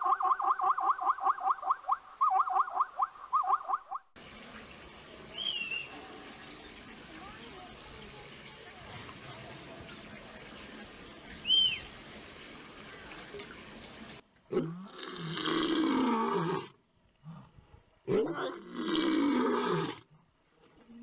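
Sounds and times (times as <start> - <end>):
large animal roaring: 14.5 - 16.8, 18.1 - 20.0.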